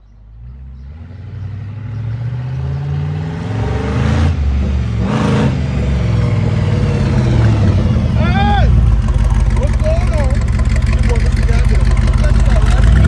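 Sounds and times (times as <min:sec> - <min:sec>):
hot rod engine running: 0:04.4 - 0:13.0.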